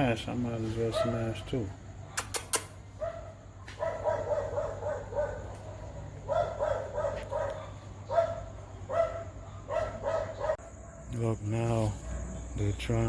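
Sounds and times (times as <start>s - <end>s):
sharp clicks: 2.2s - 2.8s
dog yelping: 2.2s - 10.6s.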